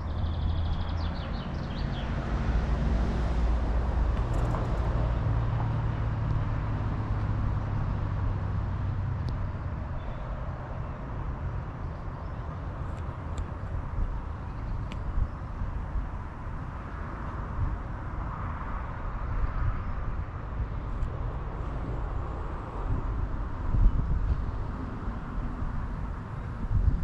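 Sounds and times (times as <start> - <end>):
wind-like noise: 12.7 - 27.0.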